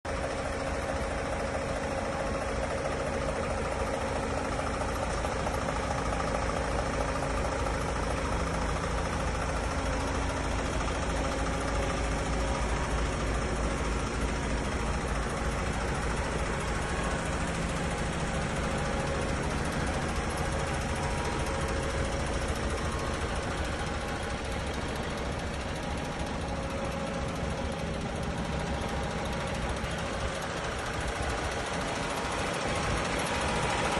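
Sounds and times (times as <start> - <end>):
truck diesel engine idling: 0.0 - 33.9.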